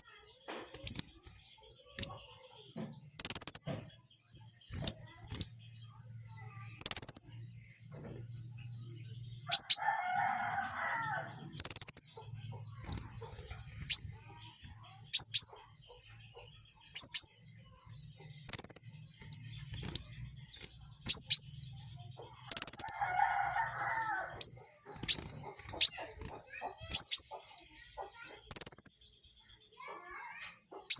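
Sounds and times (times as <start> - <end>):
songbird high-pitched calls: 0.0 - 30.9
bird chattering call: 9.4 - 20.2, 21.1 - 28.9.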